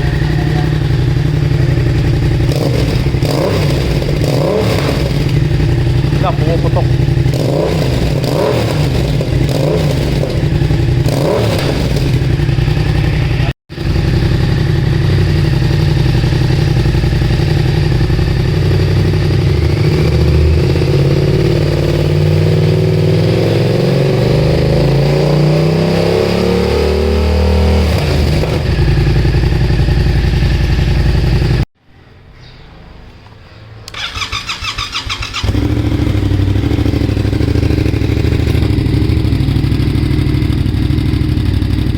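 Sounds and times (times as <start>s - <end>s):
exhaust popping: 0.0s - 26.2s, 33.9s - 41.9s
motorcycle engine revving: 0.0s - 31.7s, 33.8s - 41.9s.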